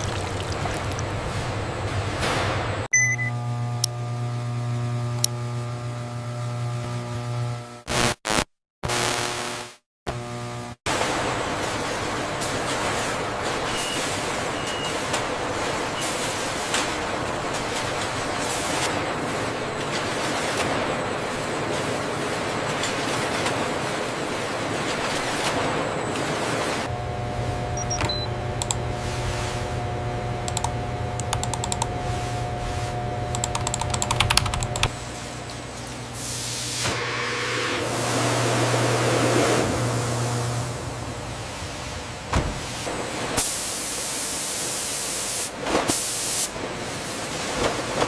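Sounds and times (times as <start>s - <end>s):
machine hum: 0.0s - 7.8s, 17.0s - 43.4s.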